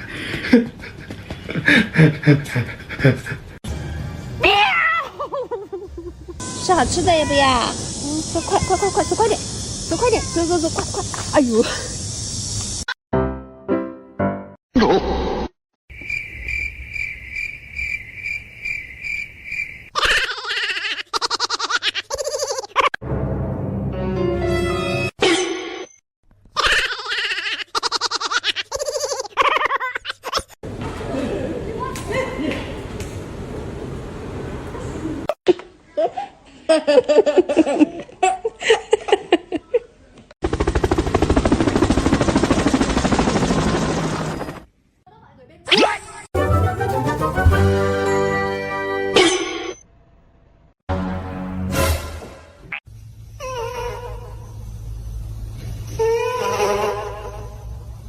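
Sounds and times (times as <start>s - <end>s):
person giggling: 0.3s - 3.5s, 5.1s - 6.4s
cricket chirping: 6.4s - 12.9s, 15.9s - 20.0s, 54.3s - 56.0s
loud rapid rattling: 40.4s - 44.7s.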